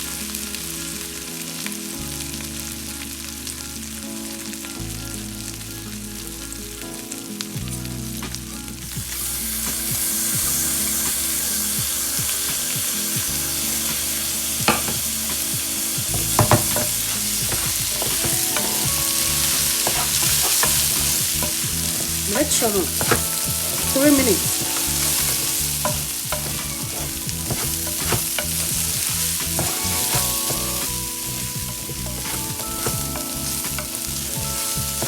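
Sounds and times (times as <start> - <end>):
food sizzling in hot oil: 0.0 - 35.0
spoon scraping and clinking pot: 13.6 - 35.0.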